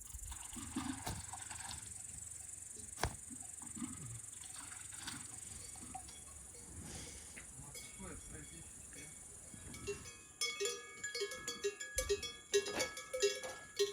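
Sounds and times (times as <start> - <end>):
insects chirring: 0.0 - 12.4
small knocks and rustles: 0.5 - 10.1.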